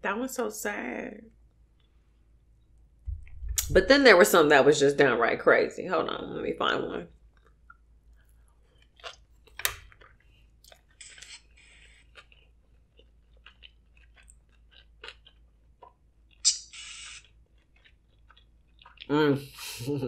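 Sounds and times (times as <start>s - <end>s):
chewing with wet clicks: 7.1s - 19.1s
short hissy sounds: 16.4s - 17.2s.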